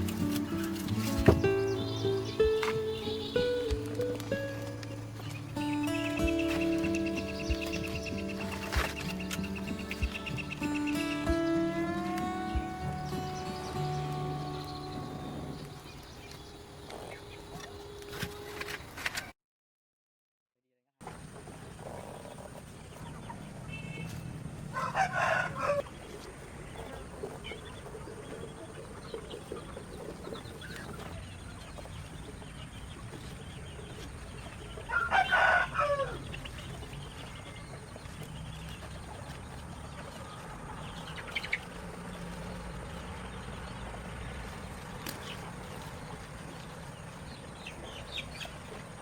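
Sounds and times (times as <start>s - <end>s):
rooster crowing: 24.7s - 25.8s, 34.9s - 36.2s.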